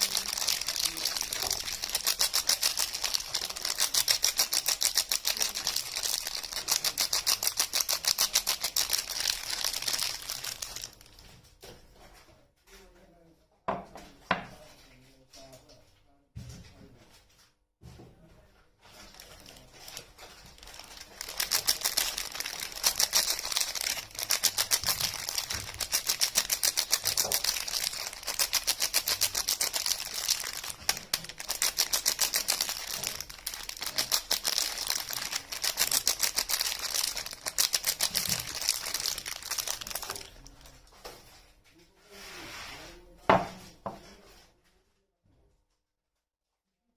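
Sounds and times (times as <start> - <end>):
packaging crackling: 0.0 - 11.2, 19.1 - 40.8.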